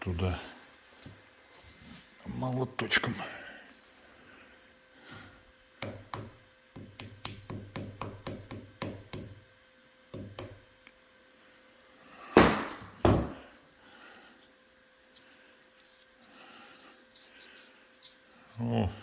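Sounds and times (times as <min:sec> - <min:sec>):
small hammer tapping: 0:05.8 - 0:09.3.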